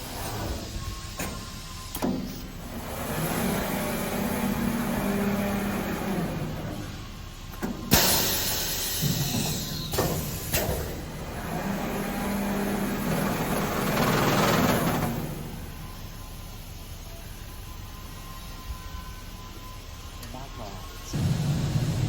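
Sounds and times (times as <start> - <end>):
sharp machine knocks: 7.9 - 10.9
low machine hum: 20.9 - 22.0.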